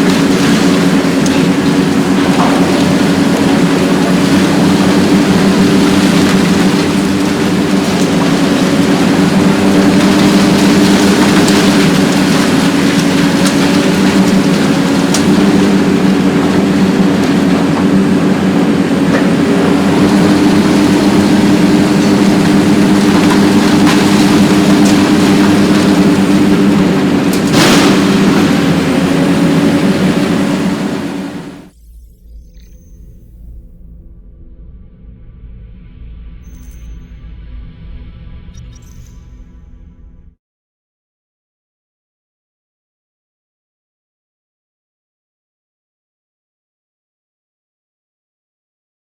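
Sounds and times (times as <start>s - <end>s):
excavator diesel engine under load: 0.0s - 31.7s
material cracking: 0.0s - 31.7s.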